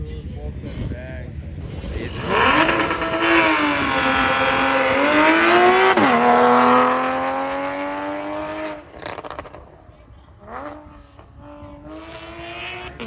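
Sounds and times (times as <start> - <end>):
car engine accelerating hard: 1.7 - 9.7, 10.4 - 13.0.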